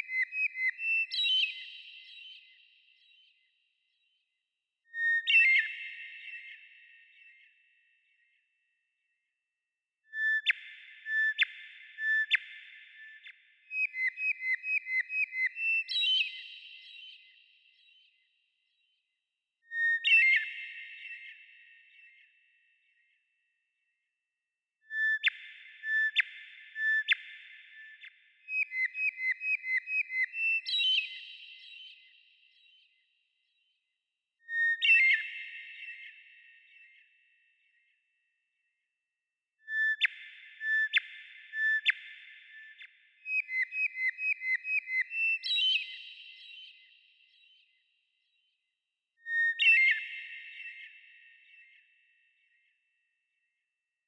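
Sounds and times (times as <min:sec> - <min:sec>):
whistled birdsong chirps: 0:00.0 - 0:09.2, 0:10.1 - 0:24.0, 0:24.8 - 0:38.7, 0:39.6 - 0:53.5
songbird singing: 0:43.3 - 0:46.5.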